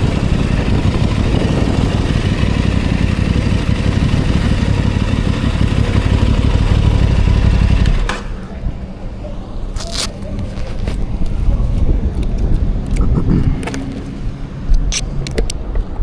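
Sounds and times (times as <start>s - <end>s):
dense rushing noise: 0.0s - 9.6s
motorcycle engine running: 0.0s - 9.7s.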